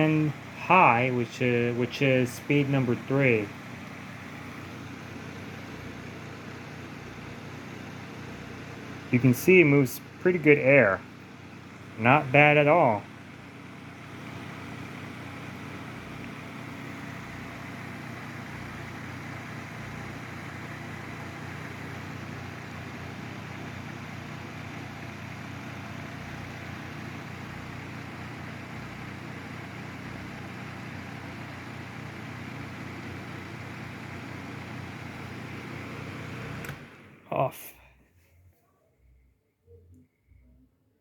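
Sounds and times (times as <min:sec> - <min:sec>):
low motor hum: 0:00.0 - 0:37.3
box fan air rushing: 0:13.8 - 0:37.3.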